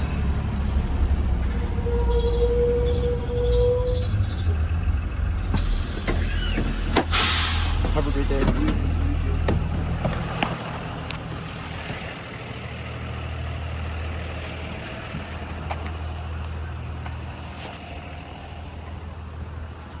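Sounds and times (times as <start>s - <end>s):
bus engine hum: 0.0s - 20.0s.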